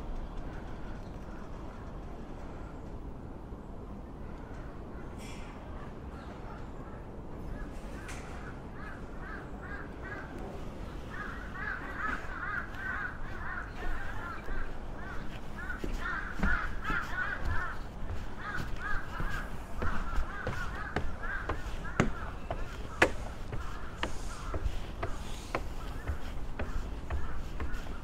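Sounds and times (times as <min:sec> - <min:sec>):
birds calling harshly: 0:04.4 - 0:28.0
footsteps on stone stairs: 0:11.1 - 0:28.0.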